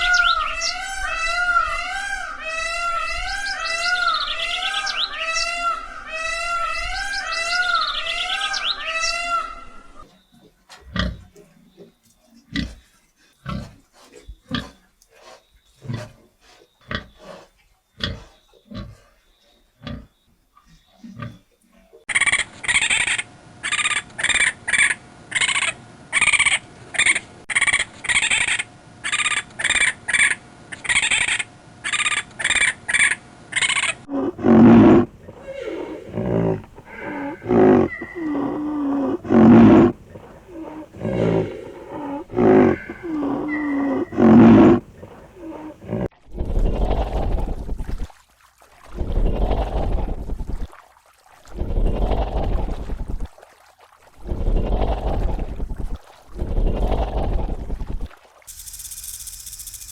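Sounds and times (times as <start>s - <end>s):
low animal grunts: 12.4s - 19.2s, 34.1s - 47.3s
warbling animal call: 33.6s - 47.6s
short high animal calls: 34.1s - 46.0s.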